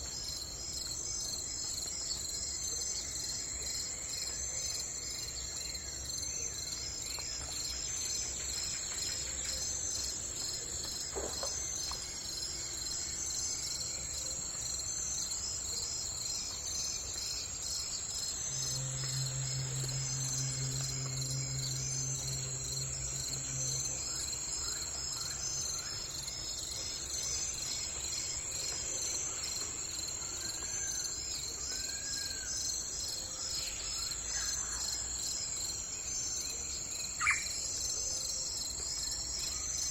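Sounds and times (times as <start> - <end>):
insects chirping: 0.0 - 39.9
low steady hum: 16.5 - 31.6.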